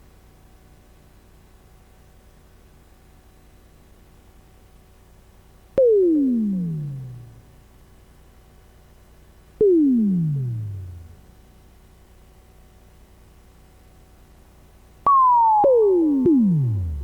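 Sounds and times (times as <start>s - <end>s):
faint low hum: 5.2s - 8.1s, 8.7s - 12.2s, 12.9s - 17.0s
electronic drop hits: 5.8s - 7.4s, 9.6s - 11.2s, 15.1s - 17.0s.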